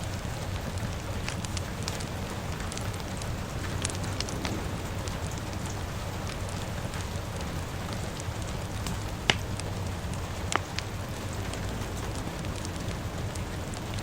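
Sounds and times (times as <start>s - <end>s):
fire popping: 0.0s - 14.0s
rain falling: 0.0s - 14.0s
wood fire crackling: 0.0s - 14.0s.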